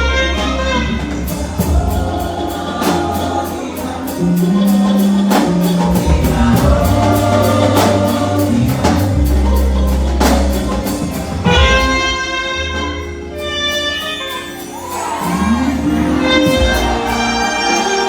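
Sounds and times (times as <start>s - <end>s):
deep bass: 0.0s - 12.2s
drums with hi-hat pulse: 0.0s - 12.4s, 14.3s - 18.0s
person singing: 1.5s - 10.3s, 14.7s - 18.0s.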